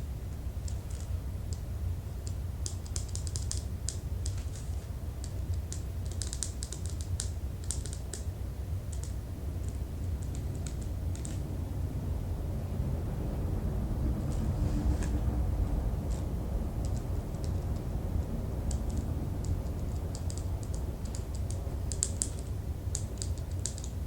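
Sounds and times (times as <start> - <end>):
steady low hum: 0.0 - 24.0
keyboard key clicks: 2.6 - 8.2.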